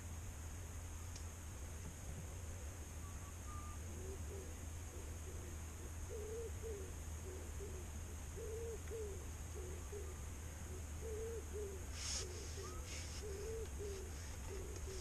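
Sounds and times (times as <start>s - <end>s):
bird calling low short notes: 3.0s - 7.8s, 8.4s - 15.0s.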